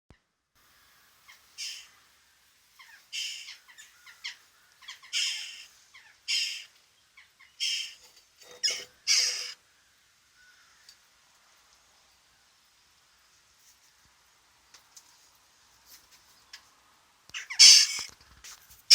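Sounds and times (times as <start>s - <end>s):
crow nestlings begging calls: 1.3s - 1.9s, 2.8s - 8.0s, 8.6s - 9.6s, 17.4s - 18.1s
thin squeaks: 7.8s - 9.6s.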